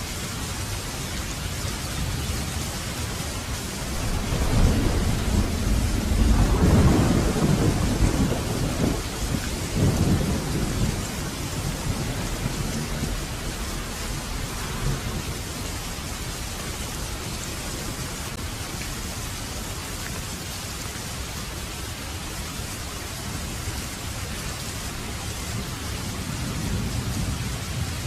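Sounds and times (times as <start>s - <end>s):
heavy rain: 0.0s - 28.0s
thunder rumbling: 2.0s - 18.4s, 24.8s - 28.0s.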